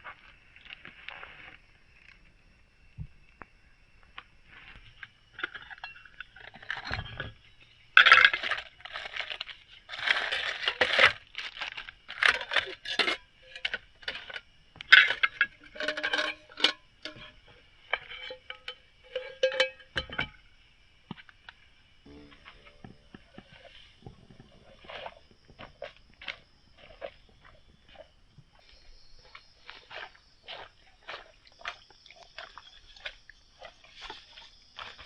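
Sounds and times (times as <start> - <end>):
small metal objects clinking: 8.0 - 20.4.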